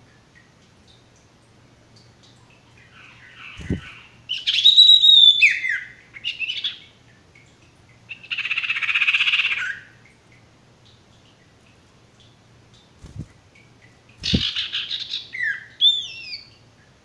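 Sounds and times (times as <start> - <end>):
bird rasping chatter: 14.2 - 14.7.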